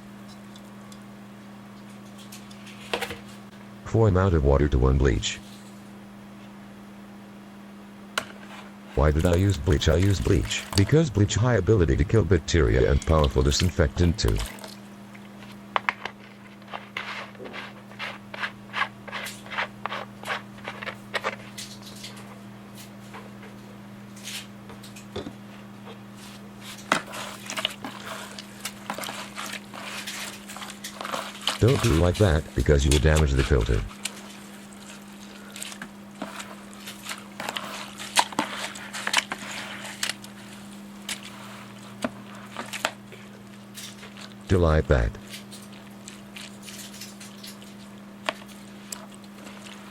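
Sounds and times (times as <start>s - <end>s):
low electrical hum: 0.0s - 49.9s
wet filter splashing and squishing: 12.7s - 15.4s, 26.7s - 44.5s, 45.2s - 49.9s
filter rubbing and scraping by hand: 16.2s - 21.5s, 26.8s - 33.8s.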